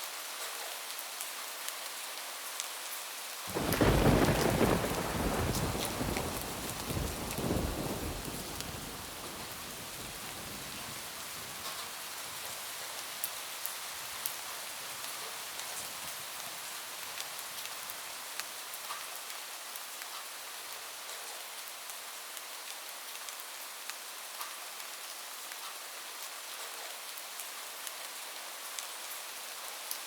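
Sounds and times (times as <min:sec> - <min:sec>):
rain on a roof: 0:00.0 - 0:30.0
thunder rolling: 0:03.5 - 0:11.8.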